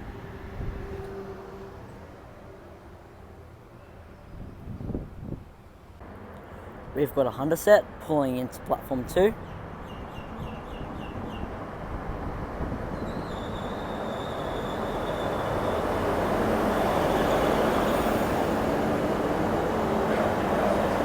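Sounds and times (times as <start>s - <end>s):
railcar engine and wheels: 0.0s - 21.0s
high steady squeal: 13.0s - 18.6s.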